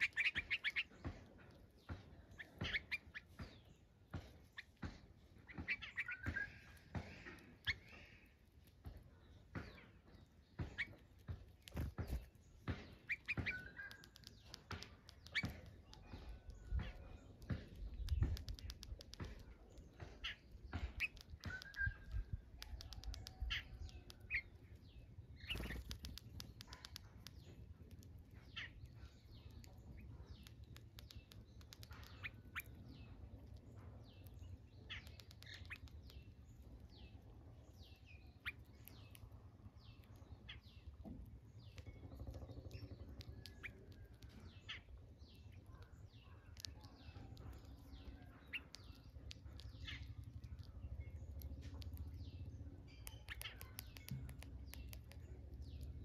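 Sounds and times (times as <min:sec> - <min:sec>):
small birds chirping: 0:00.0 - 0:56.0
low steady rumble: 0:35.9 - 0:56.0.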